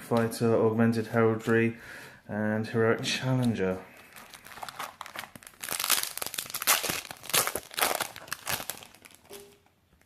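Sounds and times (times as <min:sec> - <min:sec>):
foil wrapper crinkling and tearing: 0:04.0 - 0:09.7.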